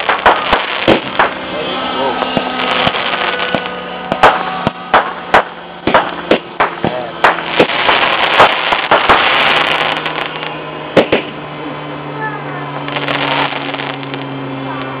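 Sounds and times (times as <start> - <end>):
crackling hiss of sparks: 0.0 - 1.3, 5.0 - 11.2, 12.8 - 14.3
fireworks popping and banging: 0.0 - 11.4, 12.7 - 14.3
steady low hum: 0.0 - 15.0.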